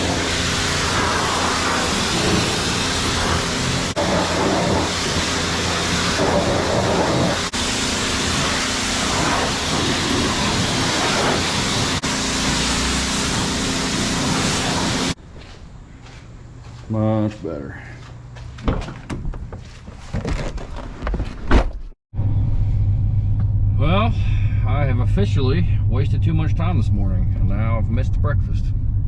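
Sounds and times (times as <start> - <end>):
high-pressure water spraying: 0.0 - 15.2
motor hum: 0.0 - 16.8.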